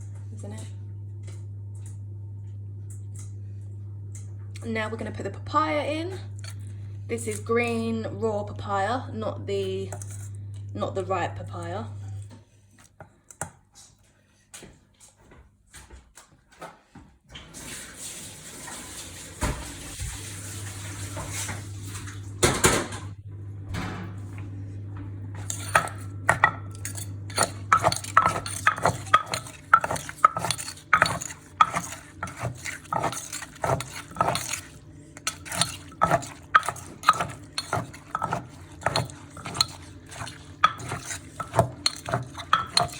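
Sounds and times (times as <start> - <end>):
pestle knocking in a mortar: 25.5 - 42.9.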